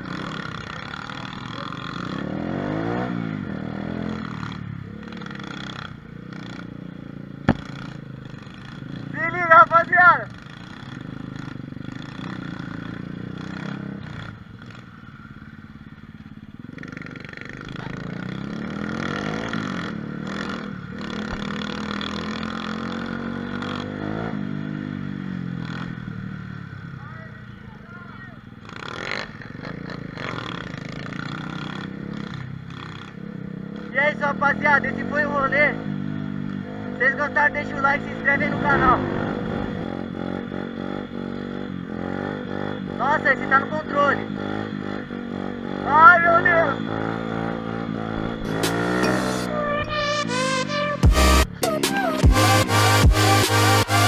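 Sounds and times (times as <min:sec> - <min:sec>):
small motorbike engine revving: 0:00.0 - 0:54.0
sharp knock: 0:07.5 - 0:08.0.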